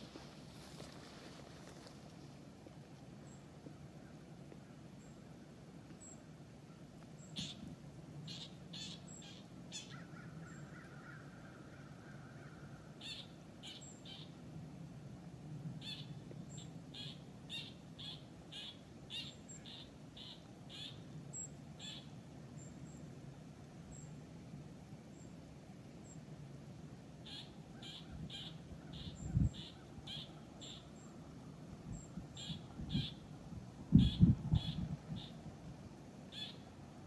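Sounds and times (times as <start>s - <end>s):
bird calling: 27.2s - 31.2s, 32.0s - 33.3s, 36.3s - 36.7s.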